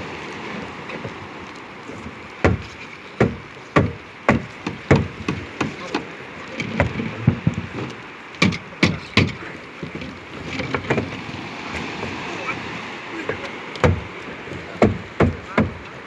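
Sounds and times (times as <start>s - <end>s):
water: 0.0s - 16.0s
wind: 0.0s - 16.0s
hollow knocks on plastic dock: 2.4s - 11.2s, 13.3s - 16.0s.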